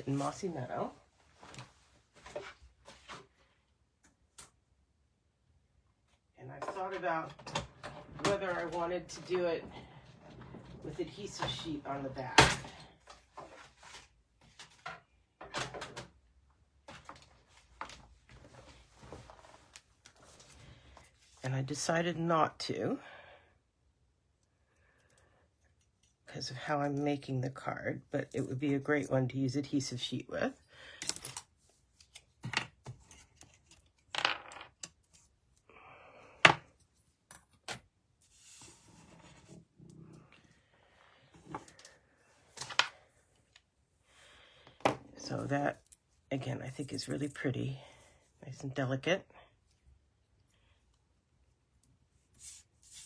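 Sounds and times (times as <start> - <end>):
paper sliding on desk: 38.2 - 39.6.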